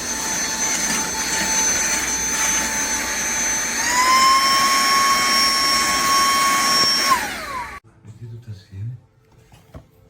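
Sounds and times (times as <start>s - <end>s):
handheld vacuum motor whining: 0.0s - 7.8s.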